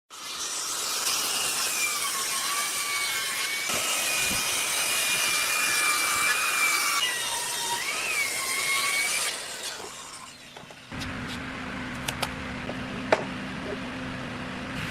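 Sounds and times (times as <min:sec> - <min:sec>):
power tool cutting wood: 0:00.1 - 0:10.9.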